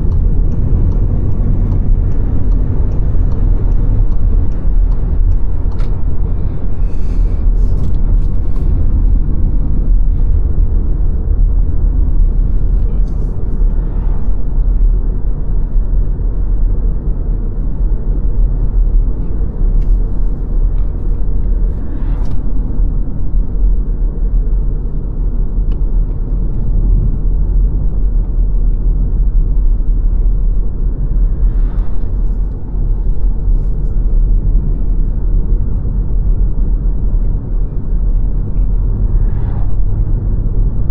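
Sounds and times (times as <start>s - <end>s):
car tyres and engine rumble: 0.0s - 40.9s.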